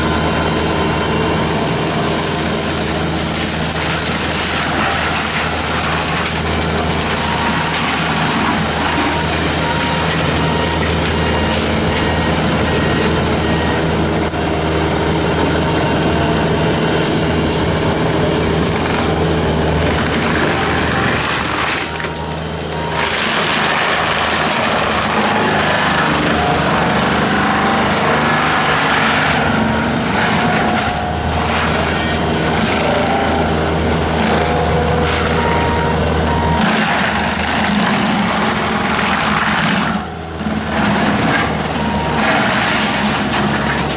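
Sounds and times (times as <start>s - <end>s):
diesel engine drone: 0.0s - 43.9s
mulcher grinding brush: 0.0s - 43.9s.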